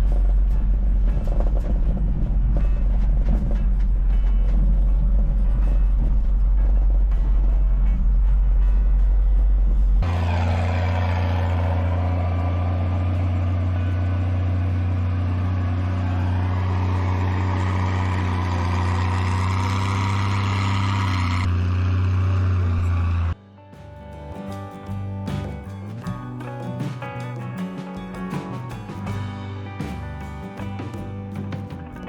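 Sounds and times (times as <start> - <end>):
heavy diesel engine drone: 0.0 - 23.4.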